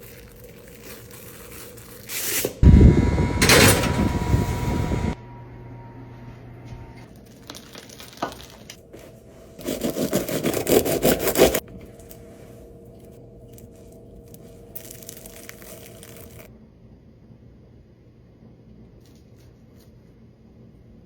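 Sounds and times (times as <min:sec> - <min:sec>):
crusty bread crackling: 0:00.0 - 0:02.4, 0:07.1 - 0:12.3, 0:12.9 - 0:16.5.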